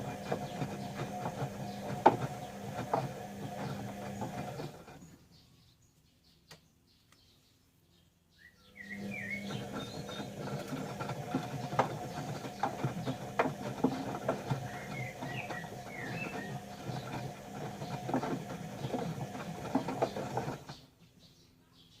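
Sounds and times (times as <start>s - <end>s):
washing machine drum turning: 0.0s - 5.0s, 9.2s - 20.7s
laundry and water sloshing: 9.4s - 20.7s.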